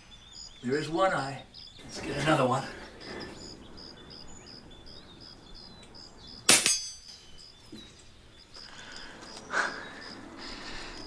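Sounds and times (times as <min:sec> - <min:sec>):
insects chirping: 0:00.0 - 0:11.0
pellet ringing steel target: 0:06.5 - 0:07.6.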